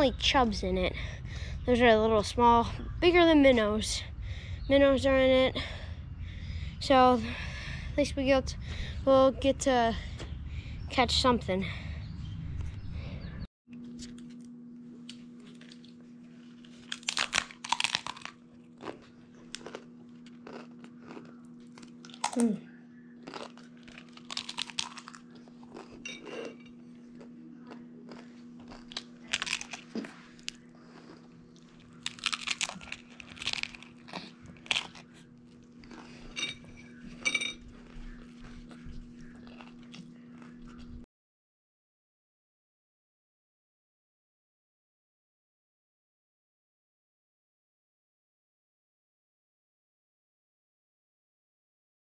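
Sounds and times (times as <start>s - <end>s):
steady low hum: 0.0s - 41.1s
crunching and chewing: 13.8s - 41.0s.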